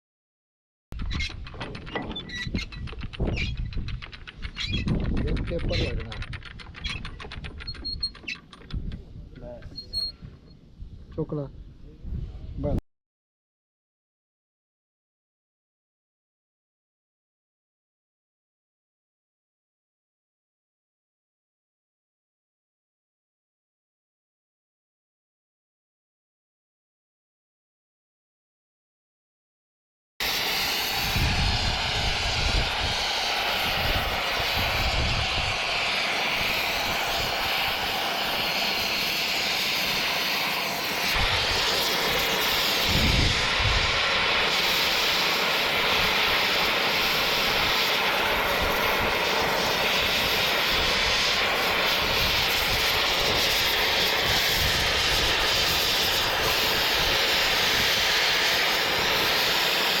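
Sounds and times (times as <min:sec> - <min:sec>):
machine hissing roar: 0:30.2 - 1:00.0.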